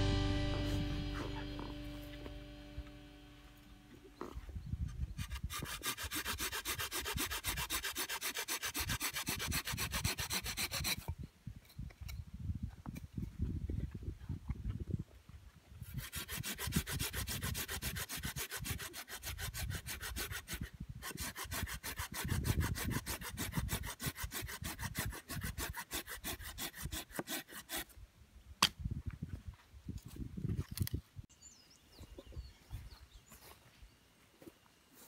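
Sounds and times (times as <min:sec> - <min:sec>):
hand saw cutting wood: 0:05.1 - 0:11.2, 0:15.8 - 0:28.0.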